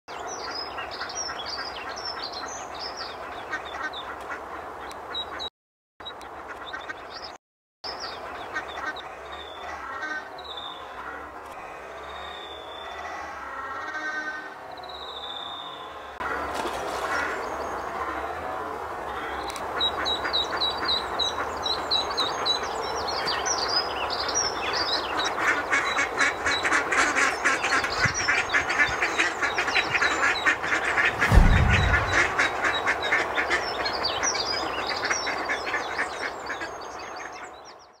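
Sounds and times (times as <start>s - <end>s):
dull low thump: 31.1s - 32.7s.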